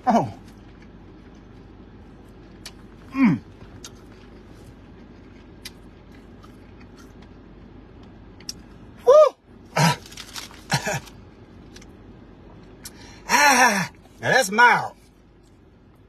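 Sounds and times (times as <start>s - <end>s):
chewing crispy sandwich: 0.2s - 8.9s, 9.8s - 13.0s
person making falling vocal sound: 9.0s - 10.0s.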